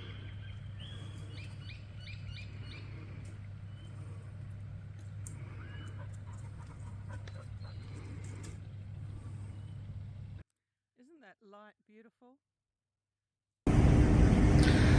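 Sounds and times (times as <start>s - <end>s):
birds chirping: 0.0s - 10.4s
steady low hum: 0.0s - 10.4s, 13.7s - 14.9s.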